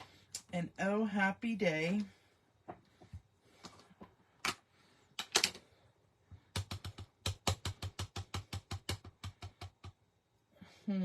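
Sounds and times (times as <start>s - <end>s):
rubber stamp tapping ink pad: 6.4s - 10.0s.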